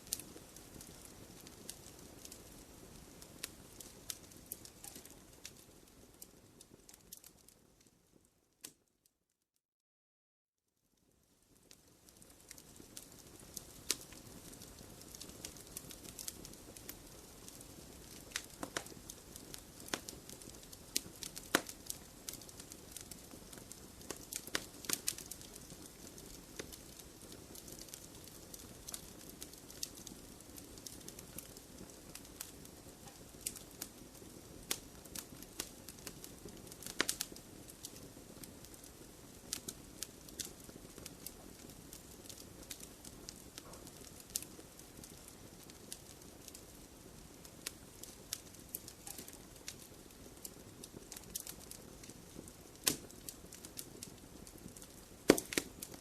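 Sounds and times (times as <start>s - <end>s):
burning logs popping: 0.0s - 7.6s, 11.6s - 56.0s
wood fire crackling: 0.0s - 8.9s, 11.0s - 56.0s.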